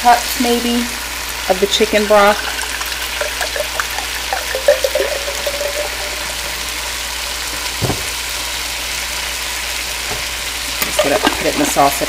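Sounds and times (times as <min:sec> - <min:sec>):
food sizzling in a pot: 0:00.0 - 0:12.0
liquid pouring gurgle: 0:02.0 - 0:07.8, 0:10.5 - 0:12.0
dull knock: 0:07.8 - 0:08.1.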